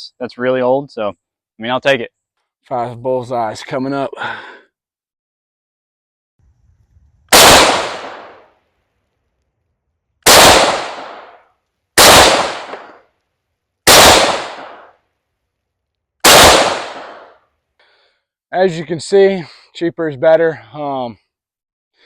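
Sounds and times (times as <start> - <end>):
rifle shots: 7.3 - 8.5, 10.2 - 11.4, 12.0 - 13.1, 13.8 - 15.0, 16.2 - 17.4.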